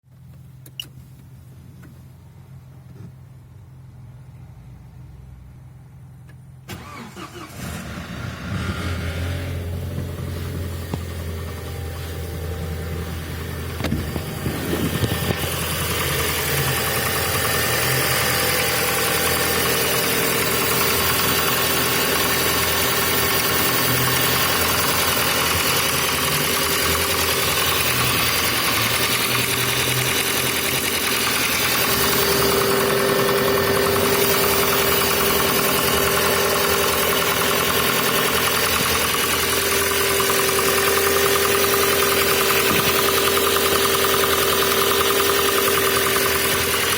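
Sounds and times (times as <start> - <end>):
car engine idling with knocking: 9.7 - 46.9.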